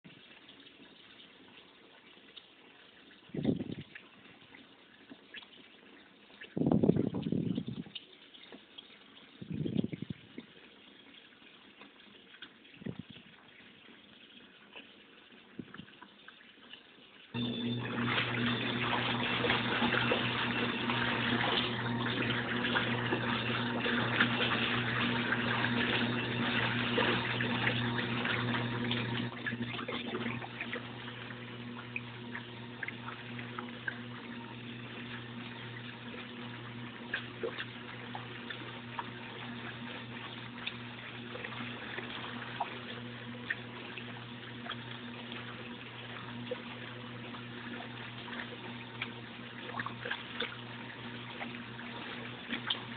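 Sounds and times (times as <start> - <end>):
washing machine low hum: 3.0 - 4.6, 5.3 - 11.8, 17.2 - 52.9
water rushing and splashing: 17.4 - 52.9.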